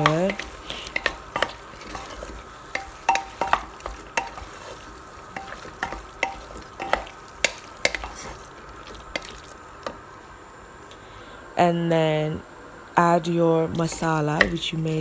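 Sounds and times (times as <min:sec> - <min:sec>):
spoon scraping metal pot: 0:00.0 - 0:09.4
chicken frying sizzle: 0:00.0 - 0:10.4.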